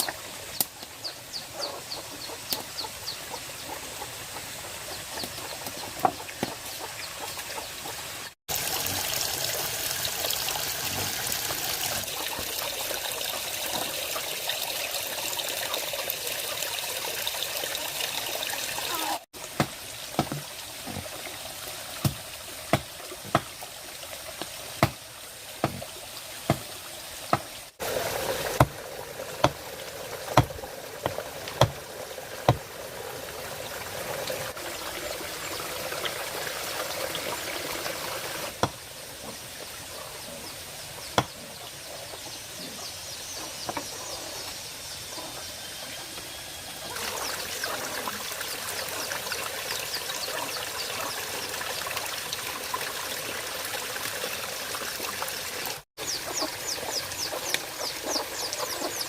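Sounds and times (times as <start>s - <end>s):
water trickling: 8.5s - 39.7s, 46.5s - 59.0s.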